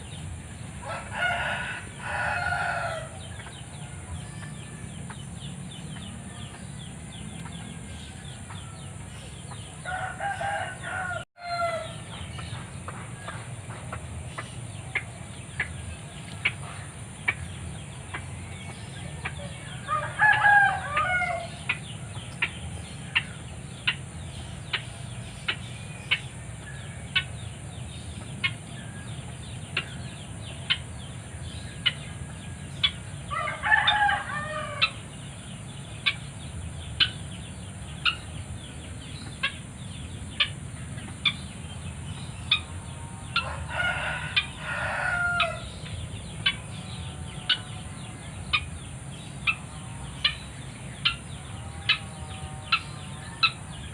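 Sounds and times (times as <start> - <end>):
rooster crowing: 0.8 - 5.0, 9.8 - 12.0, 19.3 - 21.6, 33.3 - 35.0, 42.9 - 45.8, 51.5 - 53.9.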